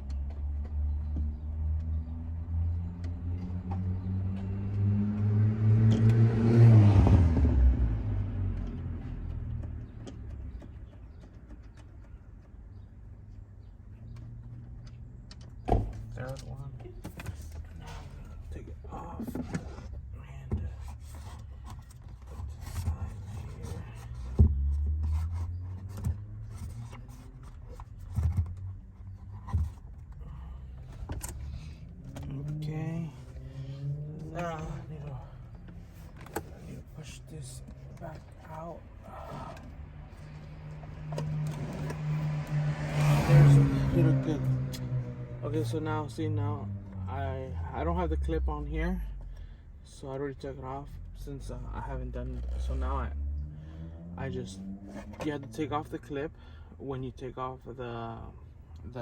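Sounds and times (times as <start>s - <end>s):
motor vehicle passing by: 0.2s - 11.2s, 17.8s - 49.6s, 51.8s - 55.6s.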